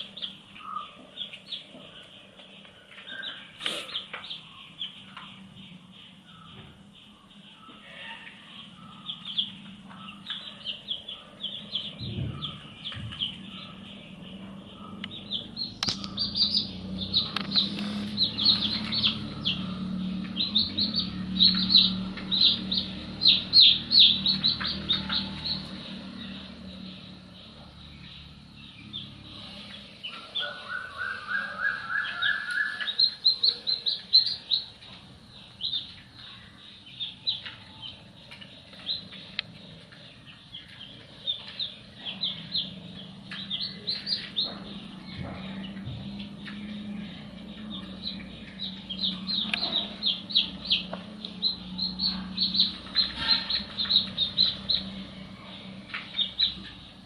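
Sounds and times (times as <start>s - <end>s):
baby chicks peeping: 0.0s - 57.0s.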